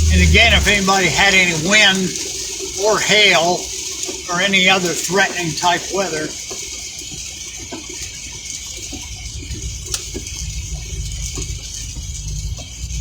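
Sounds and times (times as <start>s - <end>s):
low rumble: 0.0s - 2.9s
light rain on a vehicle: 0.0s - 13.0s
steady hiss: 0.0s - 13.0s.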